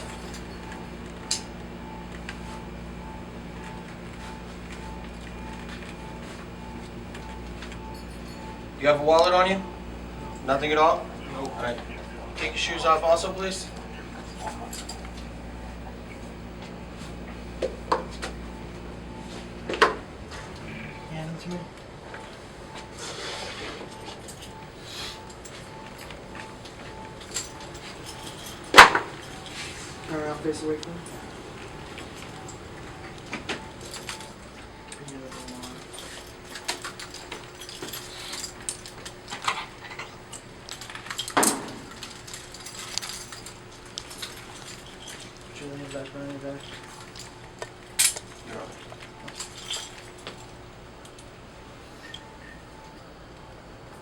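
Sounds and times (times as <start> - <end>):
steady low hum: 0.0 - 54.0
handcuffs rattling: 13.7 - 15.3, 25.2 - 30.1, 35.0 - 51.3
metal handcuffs clicking: 47.9 - 48.4.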